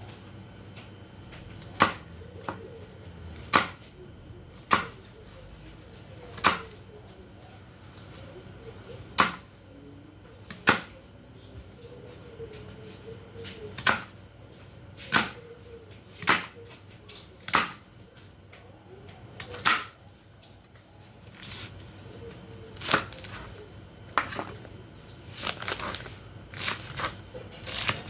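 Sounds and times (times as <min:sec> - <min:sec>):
knife chopping on cutting board: 0:03.4 - 0:03.9, 0:13.8 - 0:14.1, 0:15.0 - 0:15.4, 0:16.2 - 0:16.6.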